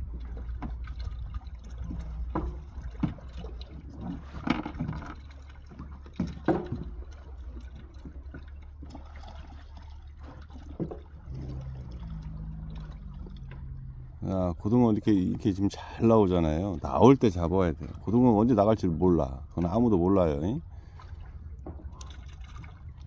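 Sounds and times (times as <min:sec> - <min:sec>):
low hum: 0:00.0 - 0:23.0
water sloshing and splashing: 0:00.0 - 0:23.0
sharp knocks and clatter: 0:04.0 - 0:07.1.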